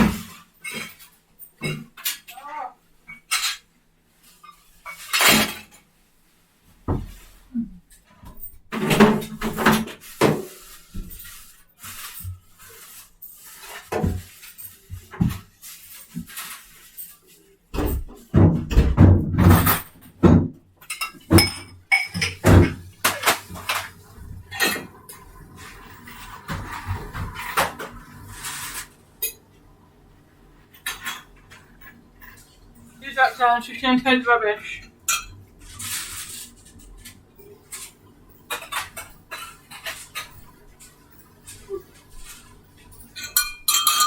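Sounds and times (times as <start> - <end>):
household objects clattering: 0.0 - 5.9, 6.8 - 29.6, 34.9 - 44.0
rustle of handling: 9.9 - 17.7.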